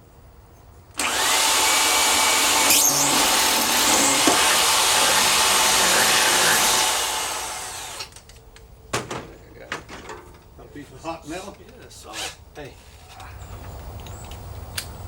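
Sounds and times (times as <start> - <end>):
power tool cutting steel: 1.0 - 8.2.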